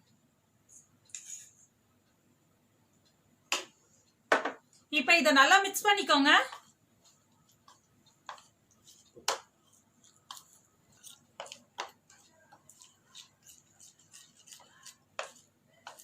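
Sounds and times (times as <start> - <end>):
utensil tapping a mixing bowl: 9.2 - 9.6, 11.4 - 16.0.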